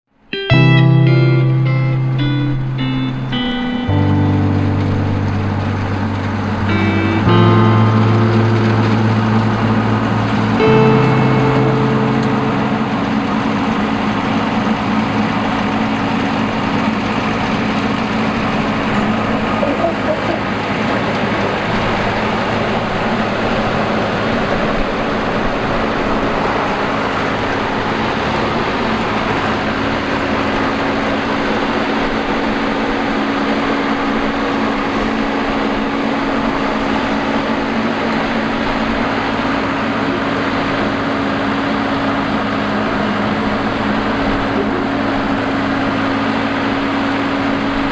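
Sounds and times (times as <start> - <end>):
combine harvester engine drone: 2.0 - 47.9.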